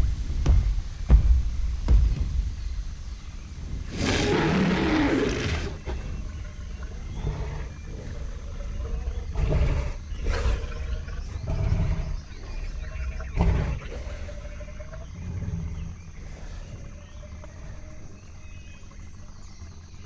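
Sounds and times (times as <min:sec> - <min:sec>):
steady low rumble: 0:00.0 - 0:20.0
dinosaur roar: 0:03.6 - 0:17.9
dinosaur calls and growls: 0:03.6 - 0:18.0.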